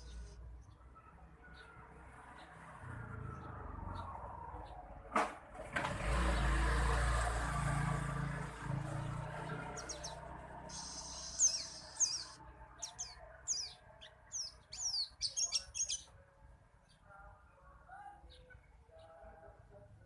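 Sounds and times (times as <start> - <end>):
bird chirping high-pitched: 9.7 - 16.1.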